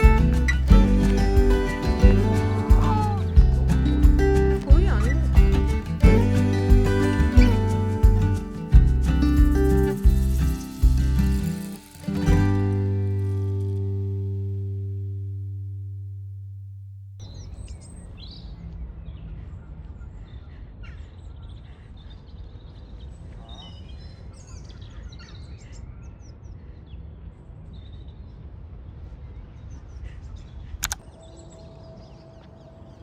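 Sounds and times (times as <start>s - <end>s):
birds chirping: 0.0s - 12.7s
low outdoor rumble: 0.0s - 17.5s
sharp click: 30.8s - 31.0s.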